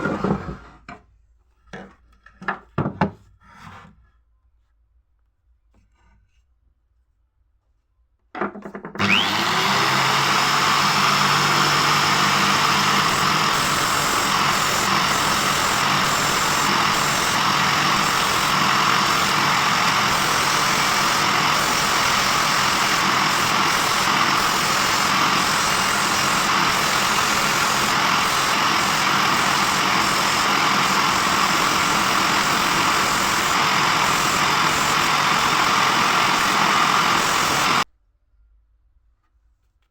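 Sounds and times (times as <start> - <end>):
electric power tool running: 9.0 - 37.9.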